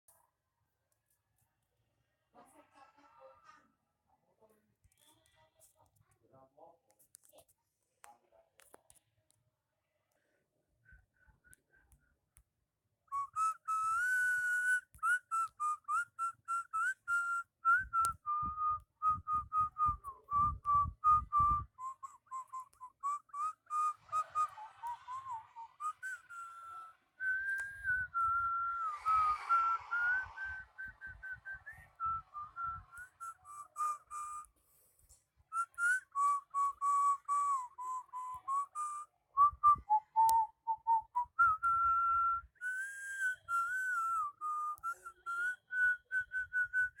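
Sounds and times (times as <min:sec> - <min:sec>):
whistled melody: 0:13.1 - 0:34.6, 0:35.5 - 0:47.0.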